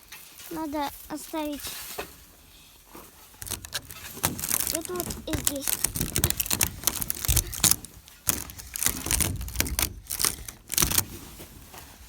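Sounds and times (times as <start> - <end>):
rustling and crackling: 0.0 - 12.0
dull knocks: 3.4 - 11.2.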